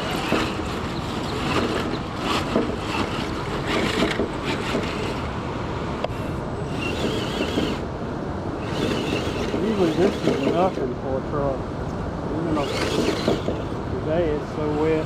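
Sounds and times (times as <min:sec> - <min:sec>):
brief clicks and scrapes: 0:00.0 - 0:05.3.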